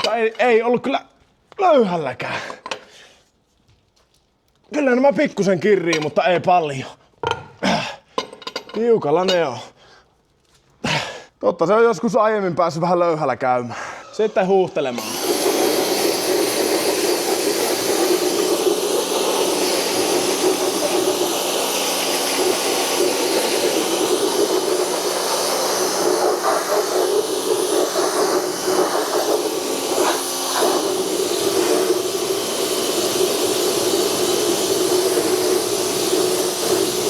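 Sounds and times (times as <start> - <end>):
pressure washer jet hissing: 14.2 - 37.0.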